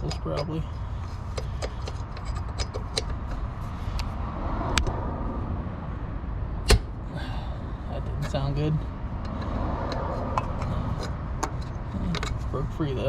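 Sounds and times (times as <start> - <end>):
wrench clicking on metal: 1.3 - 3.2.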